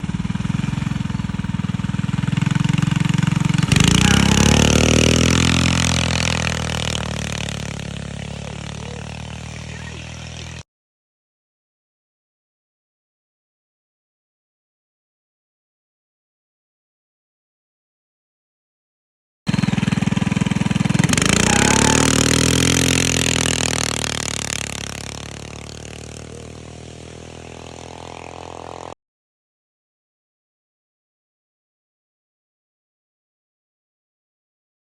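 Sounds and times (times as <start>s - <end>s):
mini bike engine idling and revving: 0.0s - 10.6s, 19.5s - 29.0s
tire spinning rushing noise: 0.0s - 10.6s, 19.5s - 28.9s.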